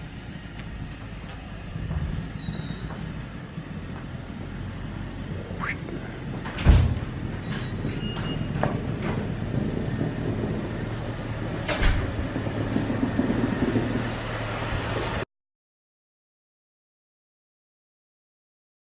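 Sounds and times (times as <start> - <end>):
car engine running: 8.4 - 15.2.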